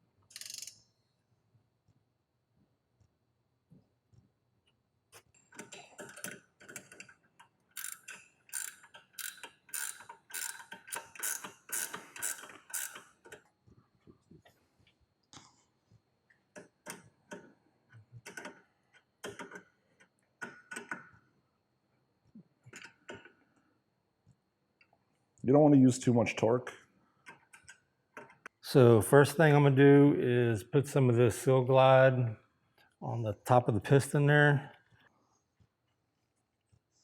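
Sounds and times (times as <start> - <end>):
ratchet wrench clicking: 0.3 - 0.9, 7.8 - 13.1.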